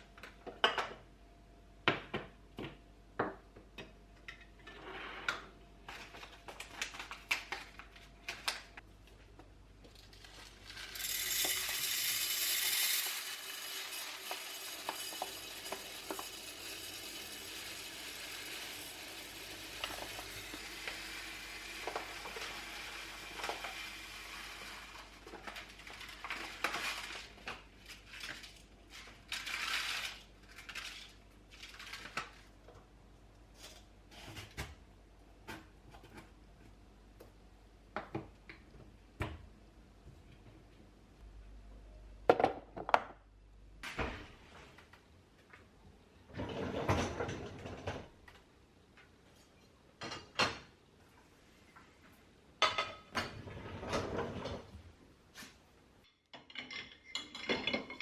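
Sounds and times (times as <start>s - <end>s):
hard objects clicking and clinking: 9.9s - 17.7s.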